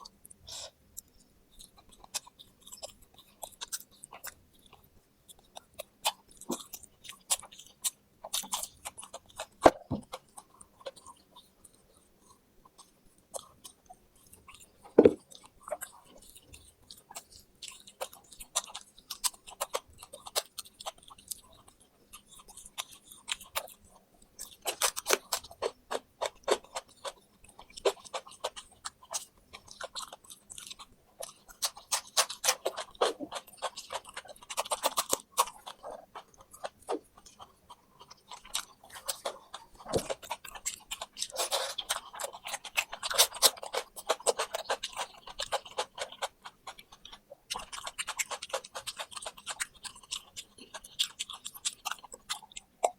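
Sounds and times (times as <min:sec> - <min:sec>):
chewing and crunching fried food: 0:00.0 - 0:52.9
small bones cracking: 0:24.5 - 0:52.9.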